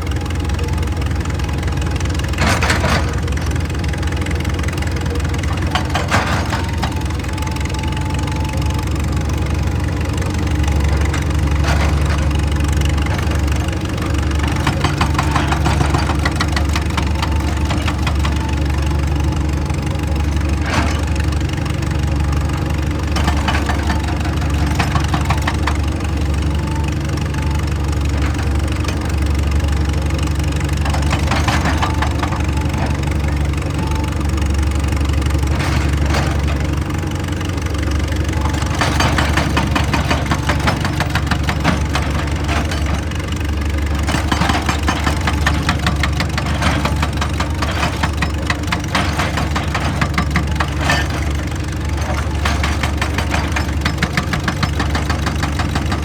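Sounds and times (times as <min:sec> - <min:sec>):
diesel engine running: 0:00.0 - 0:56.0
rapid clattering: 0:34.9 - 0:56.0.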